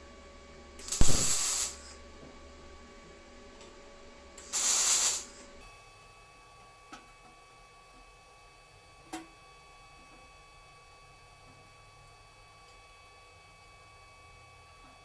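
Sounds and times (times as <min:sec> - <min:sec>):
hissing spray bursts: 0:00.8 - 0:01.9, 0:04.4 - 0:05.4
sharp knock: 0:01.0 - 0:01.4.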